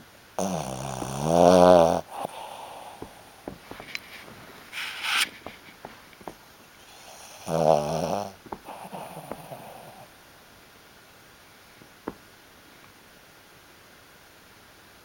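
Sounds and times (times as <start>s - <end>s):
dog snoring: 0.4s - 10.1s.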